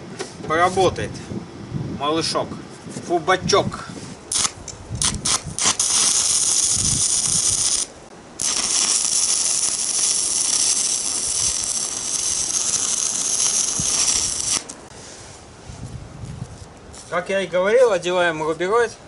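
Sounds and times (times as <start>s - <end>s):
welding arc crackling: 4.3s - 14.9s.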